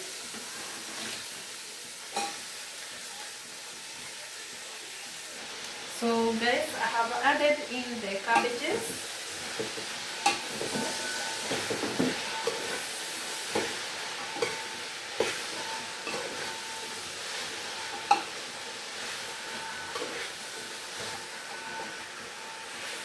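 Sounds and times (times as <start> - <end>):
cabbage sizzling in a pan: 0.0 - 23.0.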